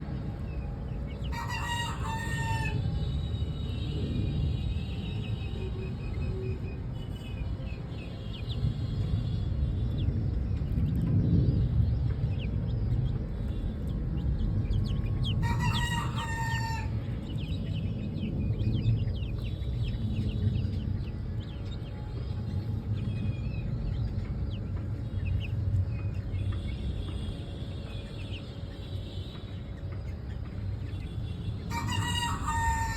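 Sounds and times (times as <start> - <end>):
steady low rumble: 0.0 - 32.9
rooster crowing: 1.3 - 2.8, 15.4 - 16.9, 31.7 - 32.9.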